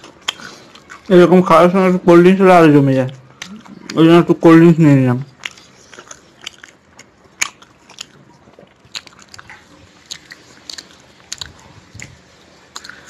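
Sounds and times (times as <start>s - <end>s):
chewing: 0.0s - 1.5s, 2.9s - 4.2s, 5.2s - 13.0s
wet mouth smacks: 8.9s - 13.0s.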